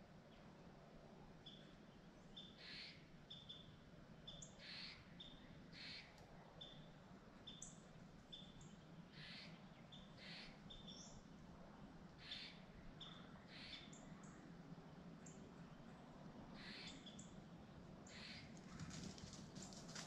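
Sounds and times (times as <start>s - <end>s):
faint small birds chirping: 1.4s - 11.4s.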